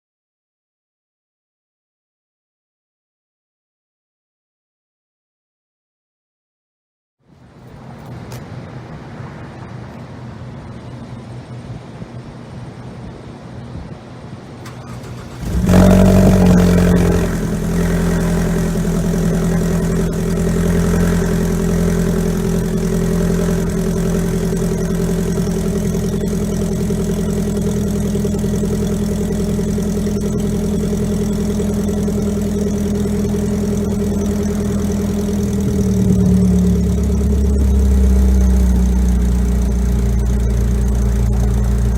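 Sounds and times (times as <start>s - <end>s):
car engine starting and idling: 14.5s - 41.9s.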